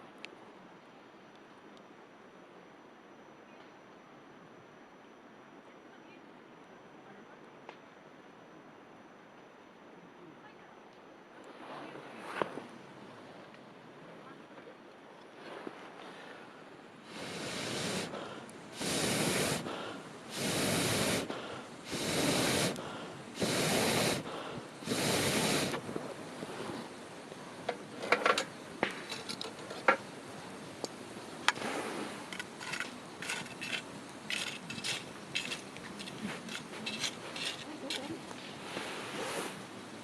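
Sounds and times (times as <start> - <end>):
campfire crackling and popping: 17.1 - 38.4.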